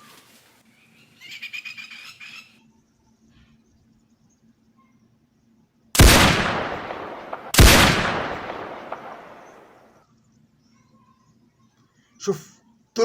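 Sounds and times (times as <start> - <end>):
rifle shots echoing: 6.0 - 9.9.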